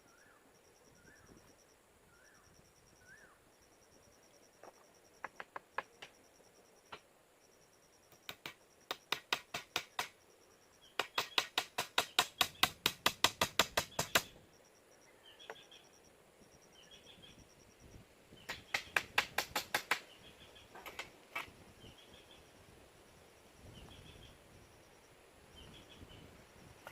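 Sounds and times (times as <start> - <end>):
rapid sharp knocks: 8.1 - 10.2, 11.0 - 14.3, 18.5 - 20.0.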